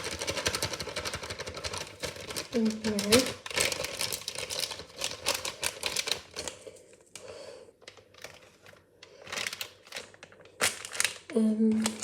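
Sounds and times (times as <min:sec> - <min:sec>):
cake mix clicking in a bowl: 0:00.0 - 0:06.6.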